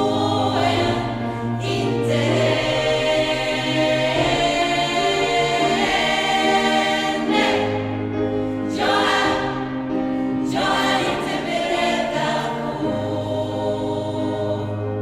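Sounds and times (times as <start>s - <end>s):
choir singing in parts: 0.0s - 15.0s.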